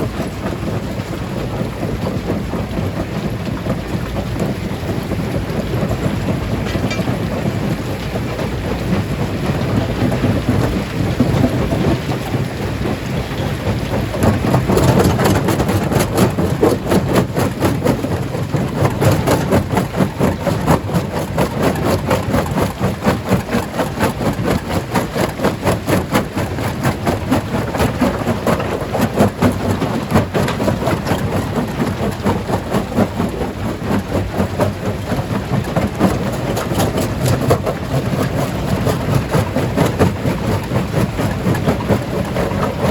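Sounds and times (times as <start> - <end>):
stone crusher rumble: 0.0 - 42.9.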